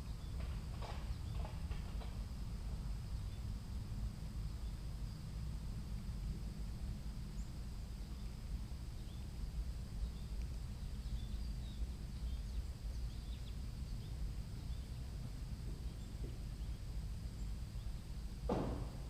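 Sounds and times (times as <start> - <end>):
faint bird chirps: 10.0 - 18.1.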